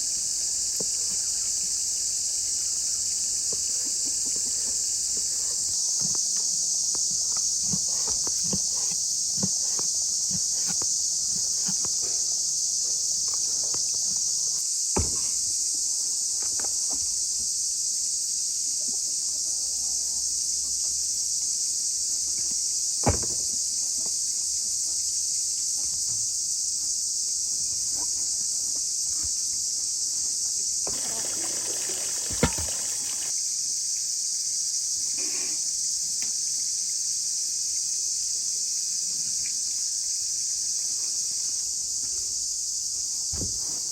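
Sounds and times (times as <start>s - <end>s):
insects chirring: 0.0s - 43.9s
rustling: 3.4s - 14.1s
sharp knocks: 32.2s - 33.3s.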